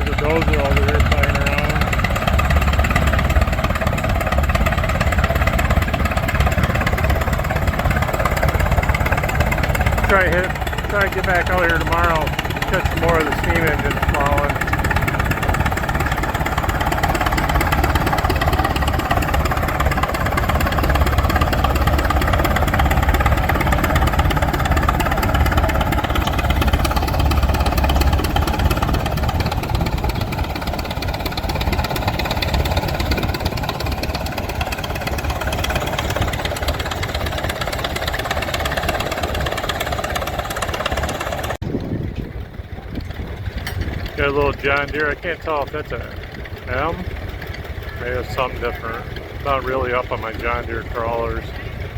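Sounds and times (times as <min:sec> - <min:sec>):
heavy machinery engine running: 0:00.0 - 0:51.9.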